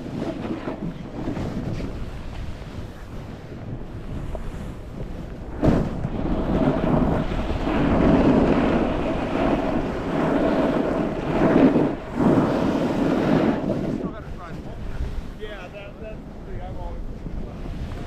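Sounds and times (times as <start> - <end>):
snowboard scraping over snow: 0.0 - 18.0
wind buffeting microphone: 0.0 - 18.0.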